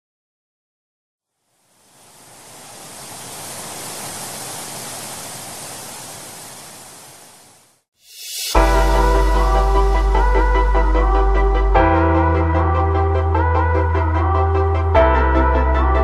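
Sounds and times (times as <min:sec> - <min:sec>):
waterfall rushing: 0:01.8 - 0:07.8
music: 0:08.1 - 0:16.0.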